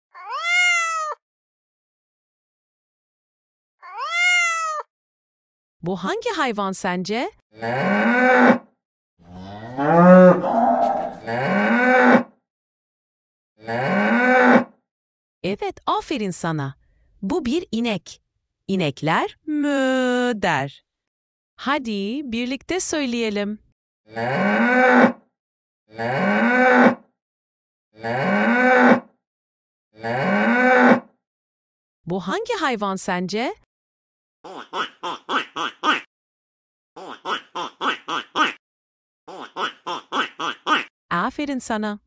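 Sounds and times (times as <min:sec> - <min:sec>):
cow mooing: 0:07.6 - 0:08.6, 0:09.3 - 0:12.2, 0:13.6 - 0:14.6, 0:24.1 - 0:25.1, 0:26.0 - 0:27.0, 0:28.0 - 0:29.0, 0:30.0 - 0:31.0.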